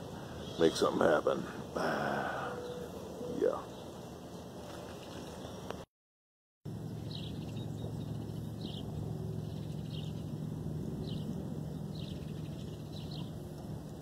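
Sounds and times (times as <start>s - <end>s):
bird chirping: 2.4s - 5.8s, 6.8s - 14.0s
low hum: 6.7s - 14.0s.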